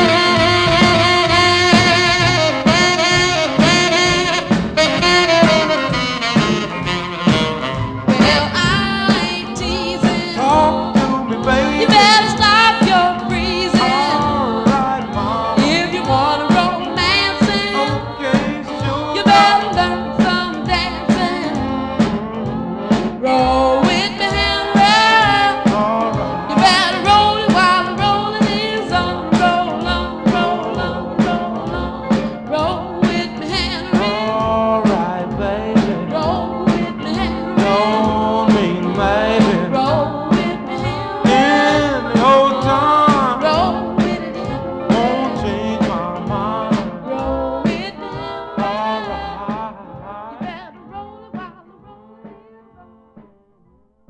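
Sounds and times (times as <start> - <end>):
voice singing with vibrato: 0.0 - 21.7, 23.2 - 52.5
backing band: 0.0 - 53.6.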